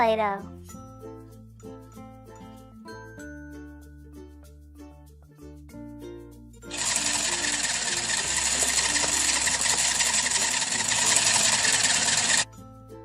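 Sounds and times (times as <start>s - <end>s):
toy appliance buzzing rattle: 6.7s - 12.5s.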